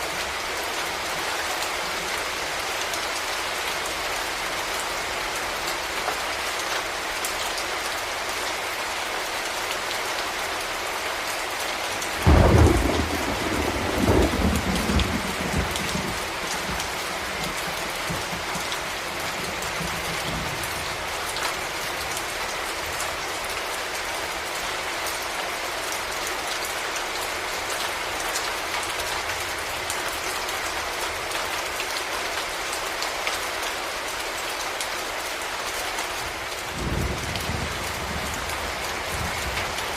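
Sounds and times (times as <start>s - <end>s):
heavy rain: 0.0s - 39.9s
thunderclap rumbling: 12.2s - 20.6s.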